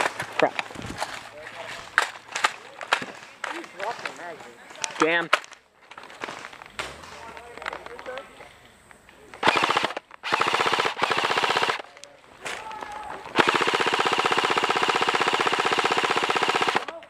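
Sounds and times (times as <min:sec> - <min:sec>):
airsoft gun automatic fire: 0:09.4 - 0:11.9, 0:13.3 - 0:17.0.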